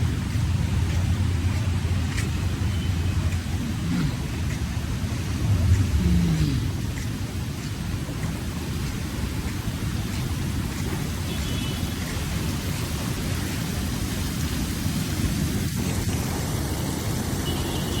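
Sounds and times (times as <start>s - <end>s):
sea waves washing onto beach: 0.0s - 18.0s.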